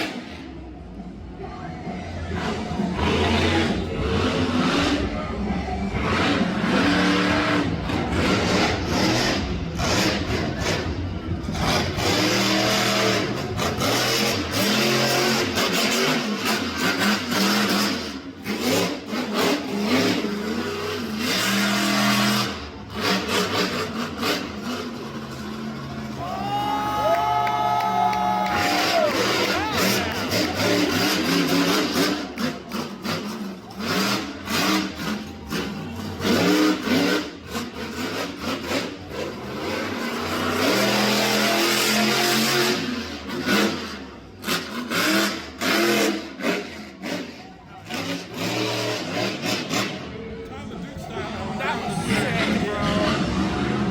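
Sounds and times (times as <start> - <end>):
truck engine revving: 0.0 - 26.3, 27.0 - 53.9.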